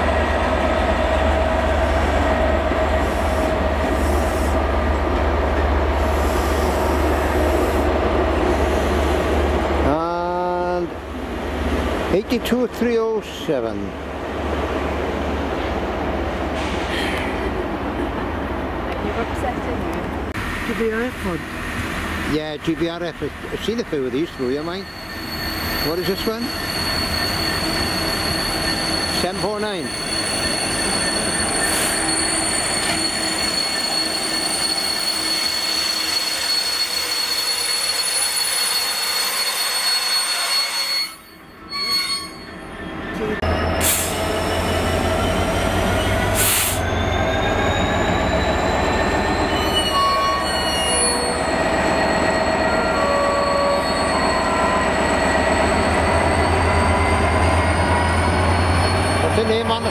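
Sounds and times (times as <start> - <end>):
train brakes squealing: 23.6 - 59.9.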